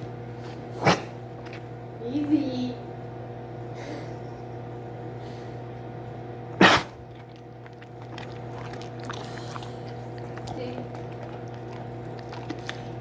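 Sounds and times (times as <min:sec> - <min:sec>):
dog sneezing: 0:00.7 - 0:01.2, 0:06.6 - 0:07.0.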